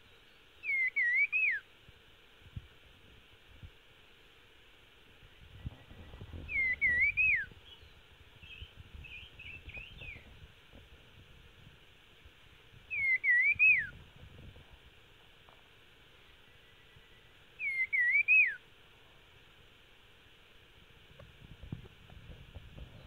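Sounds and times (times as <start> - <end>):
songbird whistled phrase: 0.6 - 1.6, 6.5 - 7.5, 12.9 - 13.9, 16.6 - 18.6.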